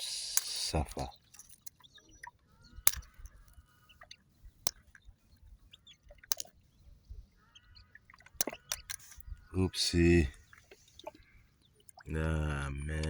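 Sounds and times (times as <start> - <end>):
faint bird chirps: 0.0 - 13.0
snail shell cracking: 2.8 - 3.5, 6.2 - 6.5.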